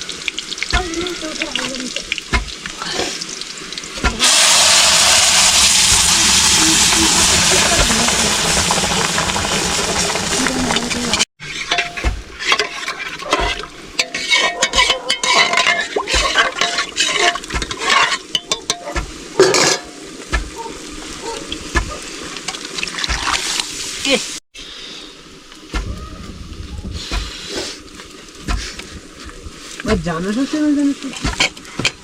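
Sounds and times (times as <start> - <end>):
food sizzling in a pan: 0.0 - 24.4
spoon stirring and clinking pot: 11.5 - 19.9.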